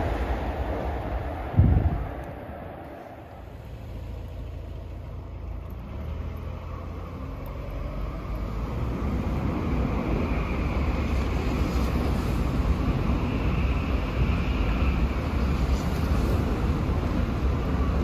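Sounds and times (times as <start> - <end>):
train rumbling past: 0.0 - 6.2.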